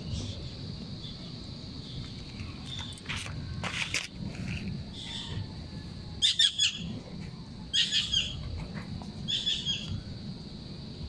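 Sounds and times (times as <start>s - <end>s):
small birds chirping: 0.0s - 4.0s, 6.2s - 10.3s.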